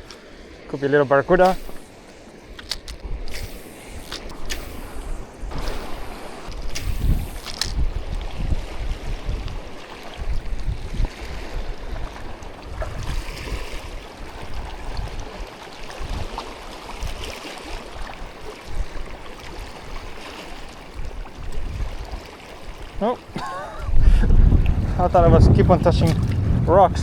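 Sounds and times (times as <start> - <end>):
shallow water lapping and trickling: 0.0 - 27.0
wind gusting on microphone: 1.3 - 16.4, 21.0 - 22.2, 23.7 - 27.0.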